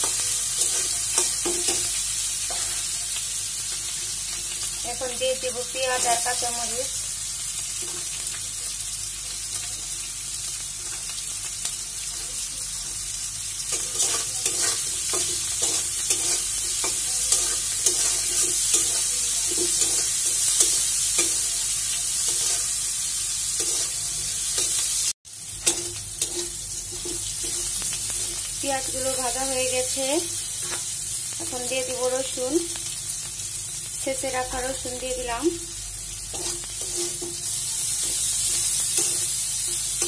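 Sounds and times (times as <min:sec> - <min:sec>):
food sizzling in hot oil: 0:00.0 - 0:40.0
metal spatula scraping pan: 0:13.7 - 0:21.4, 0:23.5 - 0:24.8, 0:25.6 - 0:29.0, 0:36.3 - 0:40.0.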